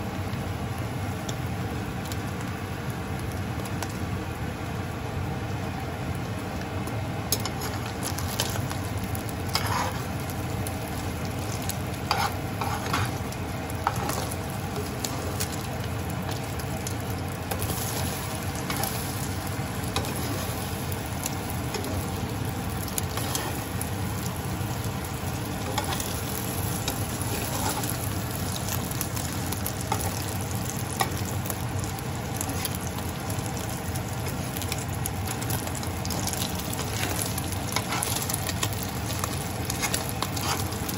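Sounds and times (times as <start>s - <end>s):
omelette sizzling in pan: 0.0s - 40.9s
metal spoon scraping pan: 9.5s - 10.1s, 12.1s - 13.2s, 26.9s - 28.0s, 39.7s - 40.9s.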